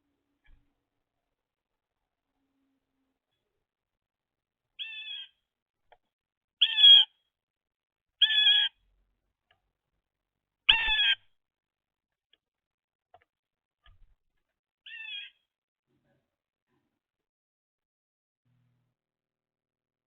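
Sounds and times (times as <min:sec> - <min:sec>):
blue jay harsh nasal calls: 0:04.8 - 0:05.4, 0:06.6 - 0:07.1, 0:08.2 - 0:08.8, 0:10.7 - 0:11.2, 0:14.9 - 0:15.4.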